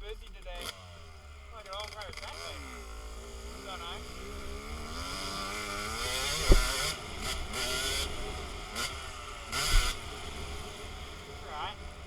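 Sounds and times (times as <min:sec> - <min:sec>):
dirt bike engine revving: 0:00.0 - 0:12.0
heavy low thuds: 0:06.2 - 0:07.0
wind on microphone: 0:06.3 - 0:06.8.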